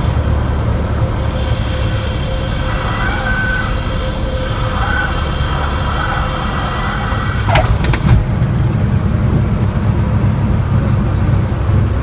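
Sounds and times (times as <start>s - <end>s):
airplane engine and airflow rumble: 0.0s - 12.0s
tyres squealing and chirping on runway: 1.9s - 8.1s.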